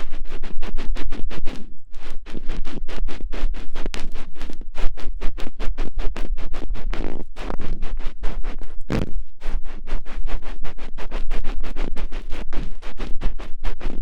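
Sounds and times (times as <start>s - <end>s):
scratching on microphone: 0.0s - 14.0s.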